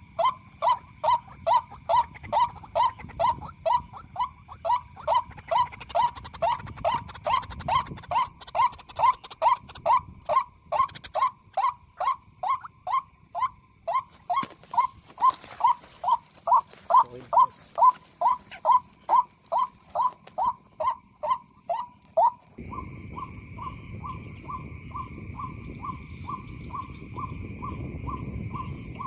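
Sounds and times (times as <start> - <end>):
waterhen call: 0.0 - 22.5.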